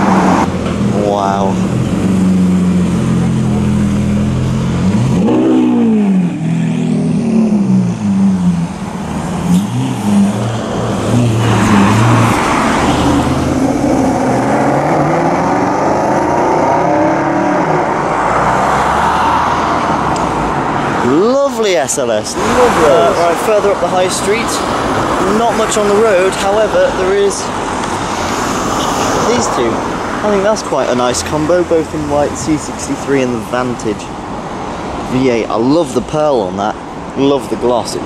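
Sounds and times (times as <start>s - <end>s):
car engine accelerating hard: 0.0s - 21.2s
car engine revving: 0.0s - 33.7s.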